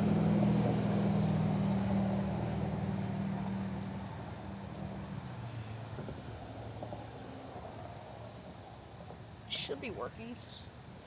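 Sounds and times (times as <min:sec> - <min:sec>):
distant engine drone: 0:00.0 - 0:08.7
high insect trill: 0:00.0 - 0:11.0.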